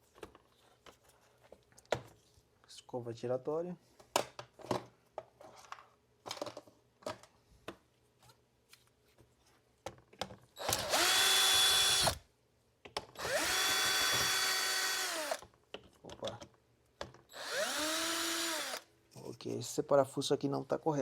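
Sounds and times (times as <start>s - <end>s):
electric screwdriver whirring: 10.6s - 12.2s, 13.2s - 15.4s, 17.3s - 18.9s.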